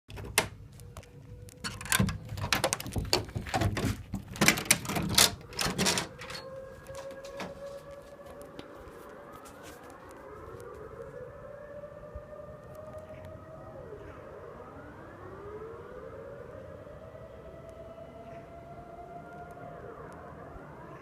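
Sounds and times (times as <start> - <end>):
siren-like droning in the sky: 5.5 - 21.0.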